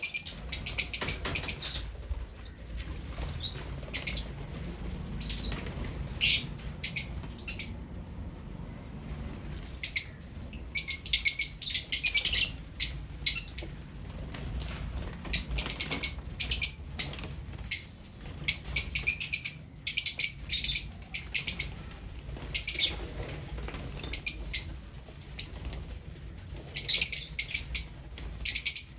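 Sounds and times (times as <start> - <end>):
lovebirds chirping: 0.0 - 7.8, 9.6 - 13.8, 15.0 - 25.7, 26.6 - 28.9.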